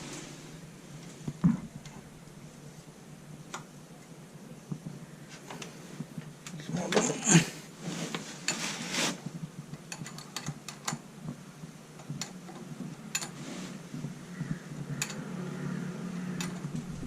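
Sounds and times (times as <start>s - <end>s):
scraping rustle: 0.0s - 1.4s, 6.8s - 9.4s, 12.7s - 14.1s
metallic clicks of tools: 15.0s - 15.2s.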